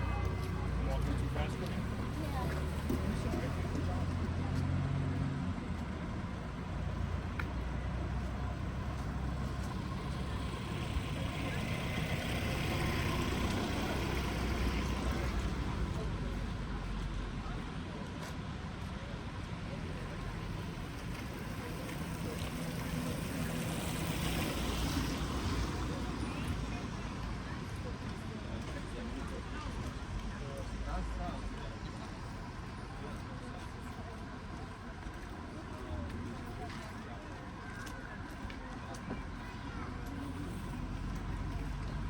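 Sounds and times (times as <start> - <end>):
vehicle engine humming: 0.0 - 37.0.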